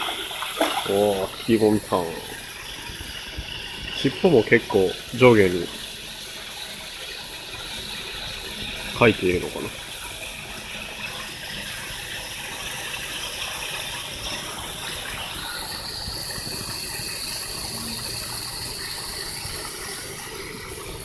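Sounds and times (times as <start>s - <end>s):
thin high whine: 0.0s - 6.0s, 14.2s - 21.0s
running water: 0.0s - 21.0s.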